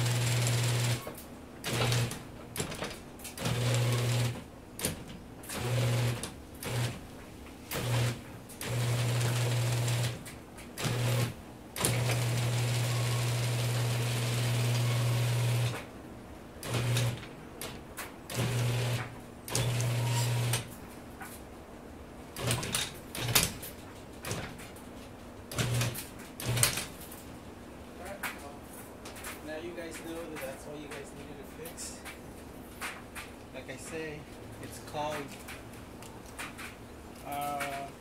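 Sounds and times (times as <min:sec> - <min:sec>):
garage door opener motor humming: 0:00.0 - 0:15.9, 0:16.6 - 0:20.8, 0:25.5 - 0:27.0
sharp knocks and clicks: 0:22.4 - 0:24.8, 0:32.0 - 0:34.0.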